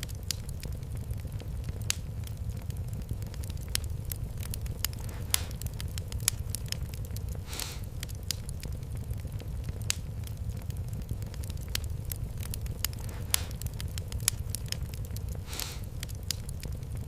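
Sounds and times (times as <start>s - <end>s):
fire popping: 0.0s - 17.0s
wood fire crackling: 0.0s - 17.0s
short hiss: 7.4s - 7.9s, 15.5s - 15.9s.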